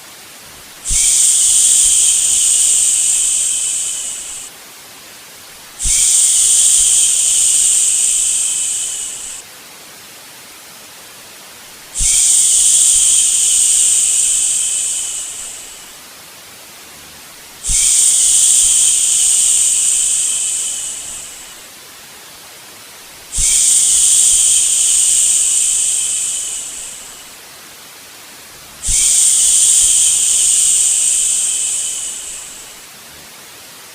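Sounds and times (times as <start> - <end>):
white noise hiss: 0.0 - 33.9
person shushing: 0.9 - 4.5, 5.8 - 9.4, 12.0 - 15.9, 17.6 - 21.6, 23.4 - 27.3, 28.8 - 32.8.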